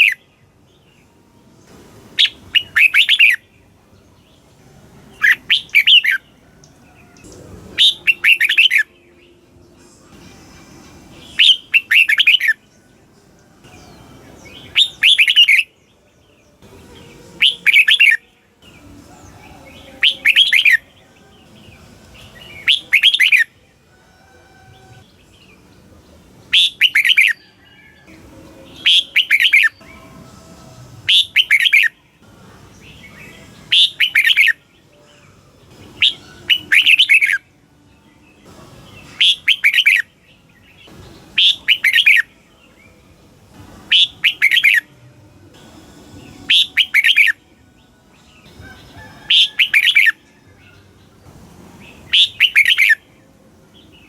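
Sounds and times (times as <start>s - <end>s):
bird singing short bright phrases: 2.2s - 3.4s, 7.0s - 9.2s, 11.2s - 12.6s, 13.7s - 15.7s, 51.8s - 53.0s.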